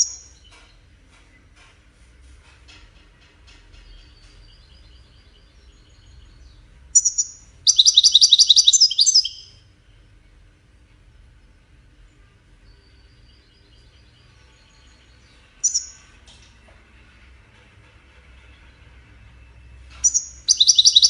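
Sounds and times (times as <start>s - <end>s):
goldfinch twittering and trilling: 7.0s - 9.5s, 15.6s - 16.0s, 20.0s - 21.0s.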